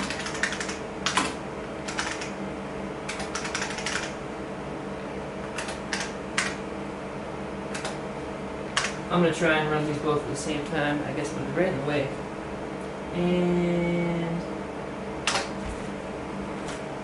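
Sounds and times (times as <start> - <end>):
typing on mechanical keyboard: 0.0 - 1.3, 1.9 - 2.3, 3.1 - 4.1
computers humming: 0.0 - 17.0.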